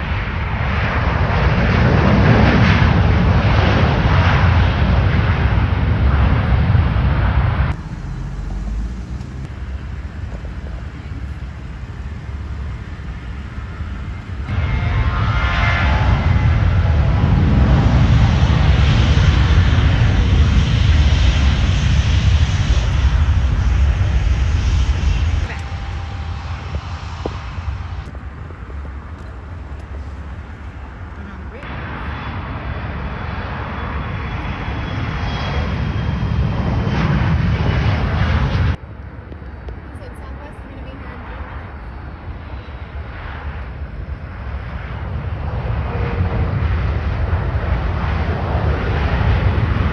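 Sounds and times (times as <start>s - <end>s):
jet engines roaring: 0.0s - 49.9s
high whine: 3.1s - 32.0s.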